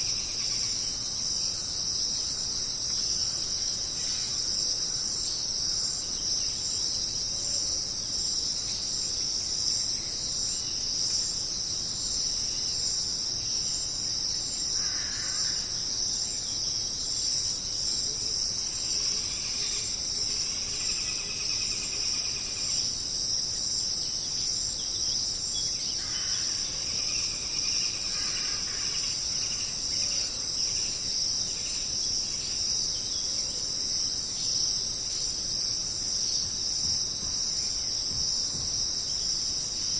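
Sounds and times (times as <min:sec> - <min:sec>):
fainter lower insect calls: 0:00.0 - 0:39.9
high-pitched insect chorus: 0:00.0 - 0:39.9.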